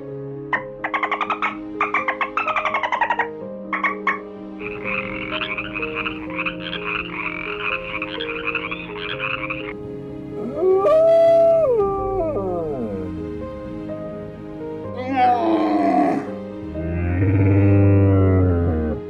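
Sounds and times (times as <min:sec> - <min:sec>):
background music: 0:00.0 - 0:11.1, 0:12.5 - 0:19.0
frogs croaking: 0:03.7 - 0:09.8, 0:15.0 - 0:16.4
dog howling: 0:15.0 - 0:16.4.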